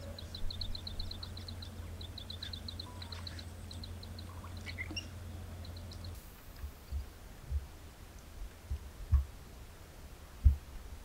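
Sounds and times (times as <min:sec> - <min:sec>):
small bird chirping: 0:00.0 - 0:06.2
steady low rumble: 0:00.0 - 0:11.0.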